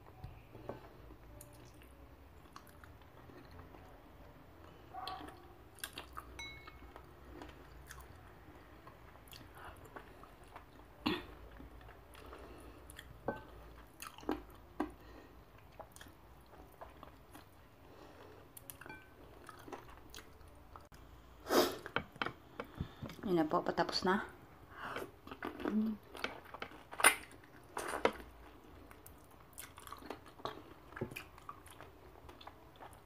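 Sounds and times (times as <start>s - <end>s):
person chewing and biting: 28.9s - 33.0s.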